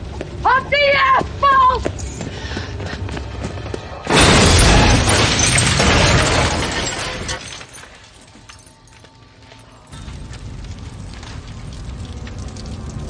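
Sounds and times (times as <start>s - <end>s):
crackling and breaking debris: 4.1s - 8.9s, 9.9s - 13.0s.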